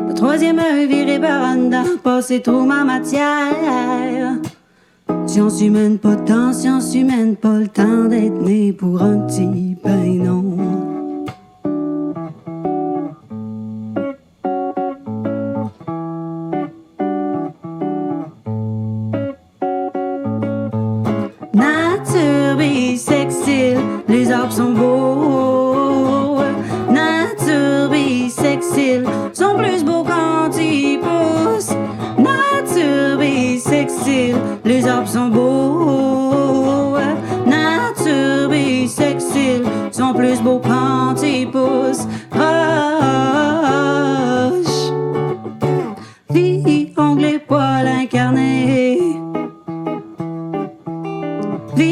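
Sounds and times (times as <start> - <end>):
person singing: 0.0 - 11.3, 21.4 - 49.5, 51.4 - 51.9
guitar playing choppy chords: 0.0 - 51.9.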